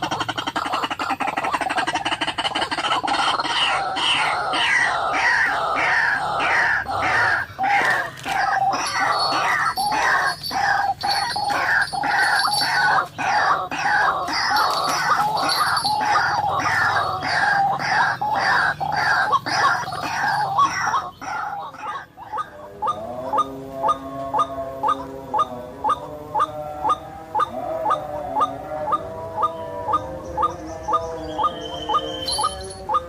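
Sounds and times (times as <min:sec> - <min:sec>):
bird calling harsh falling notes: 0:02.2 - 0:26.0.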